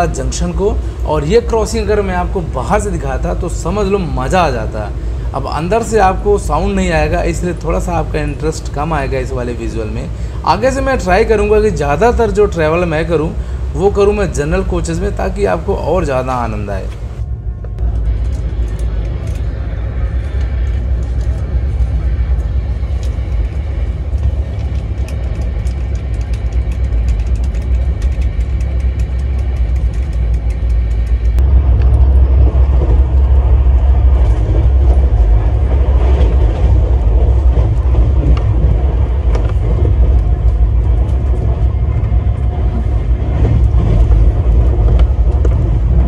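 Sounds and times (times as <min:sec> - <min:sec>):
train rumbling inside coach: 0:00.0 - 0:46.0
wheels clicking: 0:16.9 - 0:46.0.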